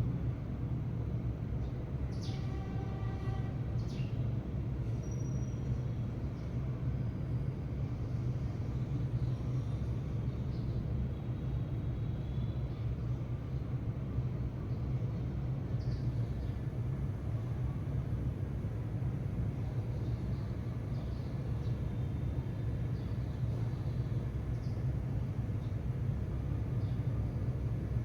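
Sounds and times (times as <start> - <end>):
sparrows chirping: 14.7 - 16.9, 19.8 - 24.9.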